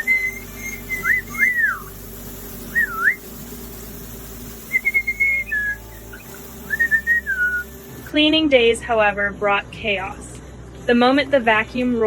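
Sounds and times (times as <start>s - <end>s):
parrot whistling: 0.0s - 2.0s, 2.7s - 3.3s, 4.7s - 7.8s.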